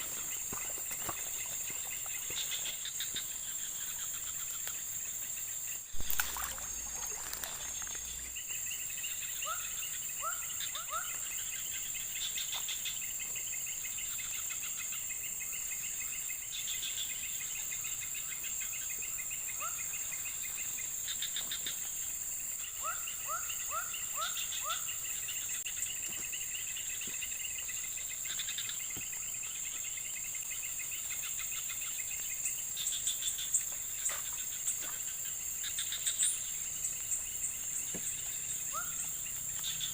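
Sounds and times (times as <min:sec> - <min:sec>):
cricket trills: 0:00.0 - 0:39.9
insects buzzing: 0:00.0 - 0:39.9.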